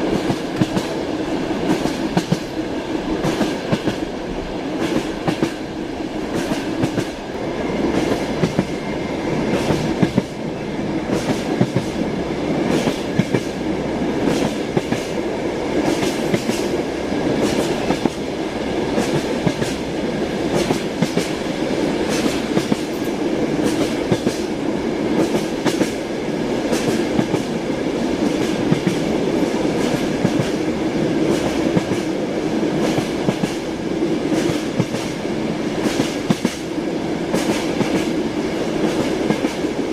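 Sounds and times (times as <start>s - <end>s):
train wheels clacking over rail joints: 0.0s - 1.0s, 1.6s - 2.6s, 4.8s - 7.3s, 7.9s - 8.8s, 9.4s - 10.4s, 11.1s - 12.0s, 12.6s - 13.6s, 14.2s - 15.2s, 15.8s - 16.8s, 17.4s - 18.2s, 18.9s - 21.4s, 22.0s - 24.5s, 25.1s - 26.0s, 26.6s - 27.6s, 28.2s - 32.1s, 32.8s - 33.7s, 34.3s - 35.2s, 35.8s - 36.7s, 37.3s - 38.2s
rumble of moving train carriage: 0.0s - 39.9s.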